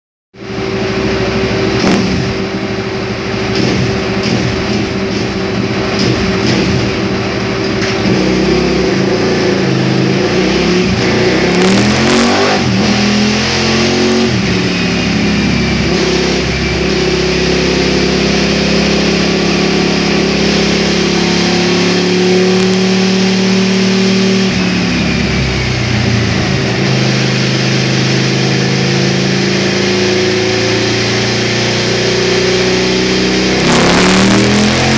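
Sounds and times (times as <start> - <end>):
motorcycle engine running: 0.4 - 34.9.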